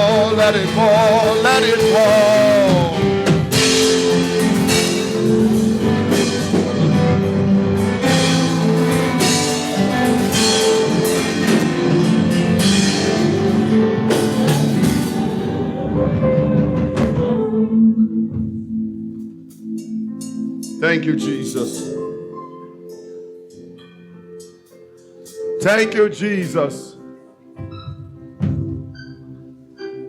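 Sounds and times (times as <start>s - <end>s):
drum kit with cymbal hits: 0.0s - 17.5s
sustained keyboard chords: 0.0s - 30.0s.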